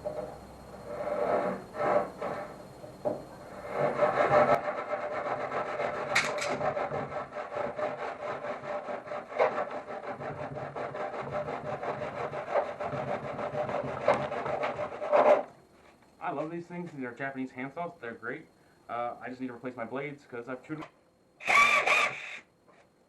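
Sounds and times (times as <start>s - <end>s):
hand saw cutting wood: 3.6s - 15.5s, 21.4s - 22.4s.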